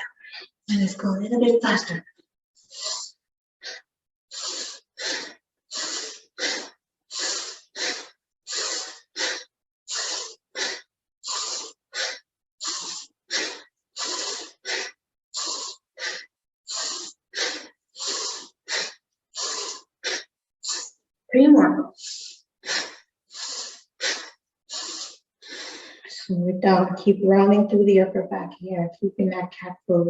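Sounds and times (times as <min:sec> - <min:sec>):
fast rhythmic breathing: 0:00.0 - 0:00.9, 0:02.6 - 0:21.0, 0:21.9 - 0:26.4.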